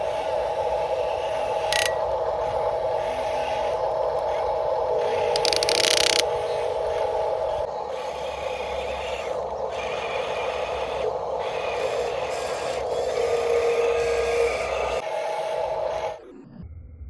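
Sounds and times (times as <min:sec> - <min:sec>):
electric motor whining: 0:00.0 - 0:16.2
sharp click: 0:01.7 - 0:02.0, 0:05.3 - 0:06.3.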